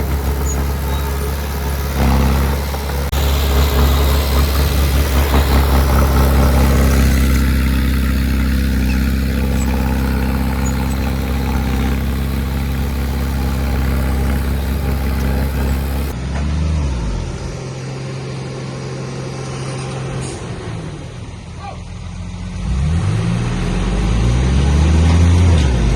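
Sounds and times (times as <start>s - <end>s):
heavy diesel engine running: 0.0s - 16.2s
quieter thinner engine note: 0.0s - 16.2s.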